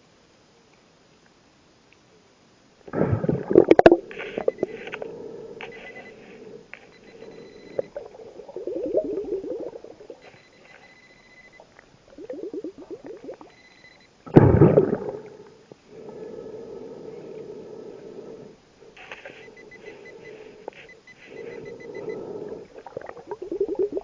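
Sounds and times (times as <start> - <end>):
underwater breath bubbles: 2.9 - 10.8, 12.1 - 13.5, 14.3 - 24.0
faint high tones: 3.6 - 14.2, 17.0 - 24.0.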